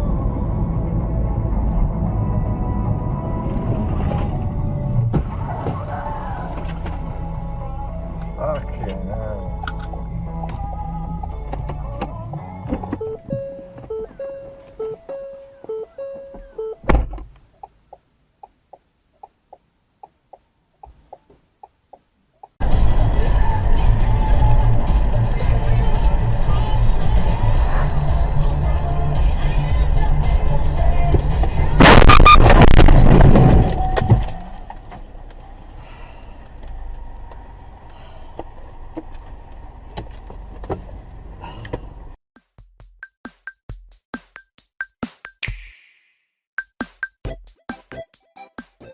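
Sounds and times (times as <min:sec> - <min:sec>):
low steady vehicle rumble: 0:00.0 - 0:42.2
faint high beeps: 0:13.0 - 0:16.8
loud noise: 0:31.8 - 0:34.2
loud bang: 0:31.8 - 0:34.3.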